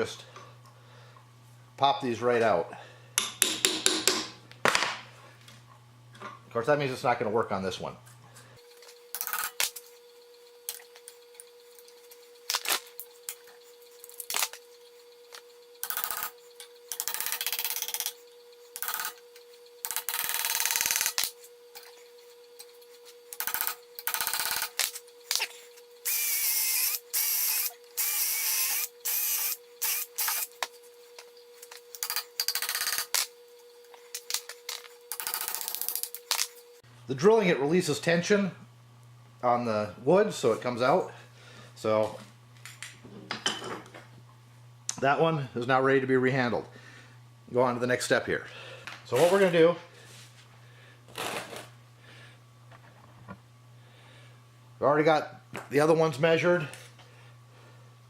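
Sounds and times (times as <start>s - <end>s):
faint steady hum: 0.0s - 58.0s
power drill boring into wood: 26.0s - 30.5s.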